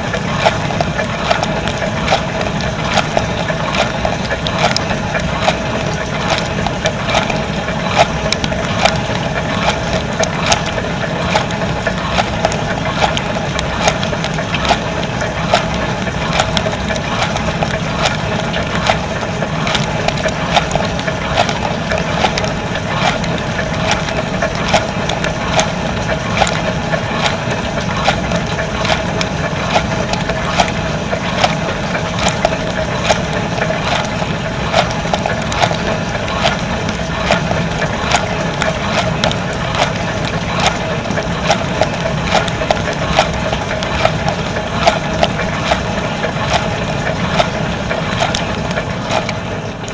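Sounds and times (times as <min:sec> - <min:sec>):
dishwasher pump hum: 0:00.0 - 0:49.9
sharp clicks and patters: 0:00.0 - 0:49.9
water jets spattering: 0:00.0 - 0:49.9.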